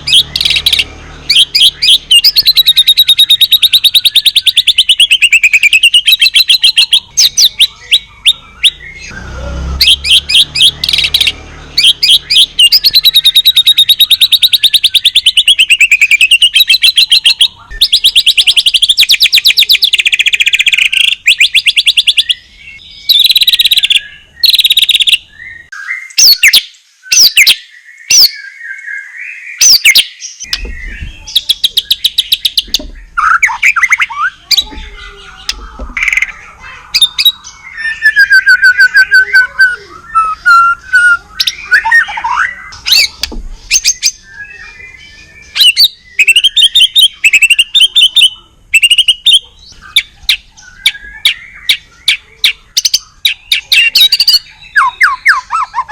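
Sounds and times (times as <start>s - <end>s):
bird singing fast trills: 0.0s - 55.9s.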